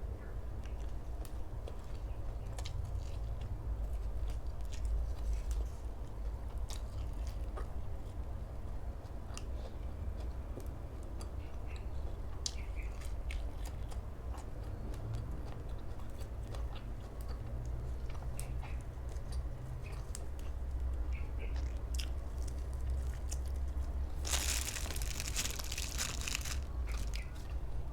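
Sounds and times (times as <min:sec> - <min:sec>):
person chewing crunchy food: 0:12.9 - 0:27.9.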